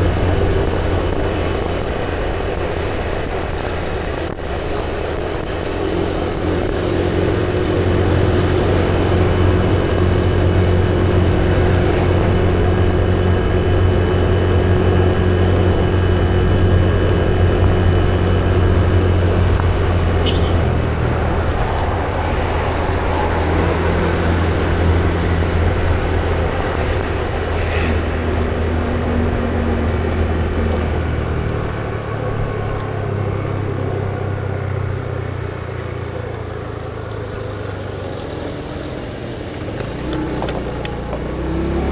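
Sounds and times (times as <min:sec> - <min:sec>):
road and wind noise: 0:00.0 - 0:41.9
vehicle engine hum: 0:00.0 - 0:41.9.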